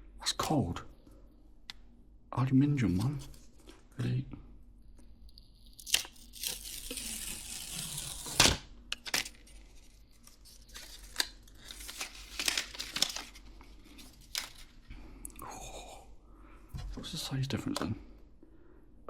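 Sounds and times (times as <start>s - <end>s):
paper tearing rustle: 5.8s - 14.7s.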